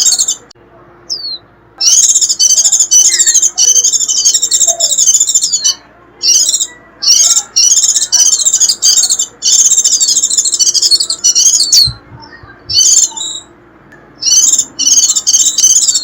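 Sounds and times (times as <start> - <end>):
bird twittering: 0.0 - 0.5, 1.1 - 13.6, 14.2 - 16.0.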